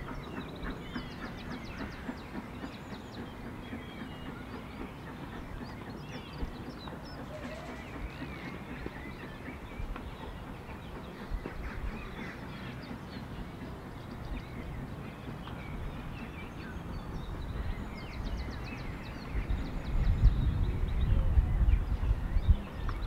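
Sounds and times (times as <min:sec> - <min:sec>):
birds chirping and singing: 0:00.0 - 0:23.0
steady low rumble: 0:07.9 - 0:23.0.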